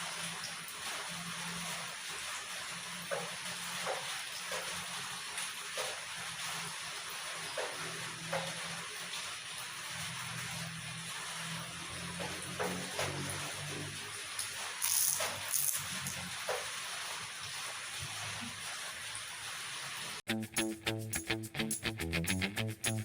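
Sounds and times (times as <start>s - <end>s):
mouth and utensil clicks: 20.4s - 23.0s.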